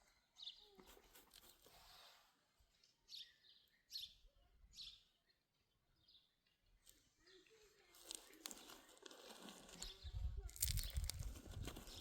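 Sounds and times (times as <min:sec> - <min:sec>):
small bird chirping: 0:02.8 - 0:12.0.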